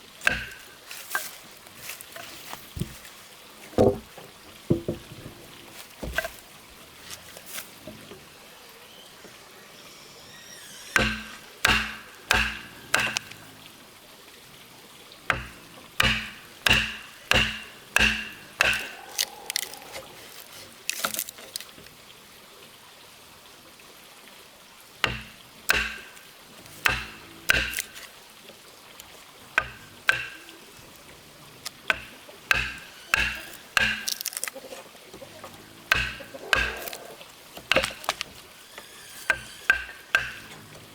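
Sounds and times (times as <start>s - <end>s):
hand tool striking wood: 0.2s - 1.4s, 4.7s - 6.4s, 10.9s - 13.4s, 15.3s - 19.7s, 25.0s - 28.1s, 29.6s - 30.6s, 31.9s - 34.5s, 35.5s - 37.0s, 37.6s - 40.7s.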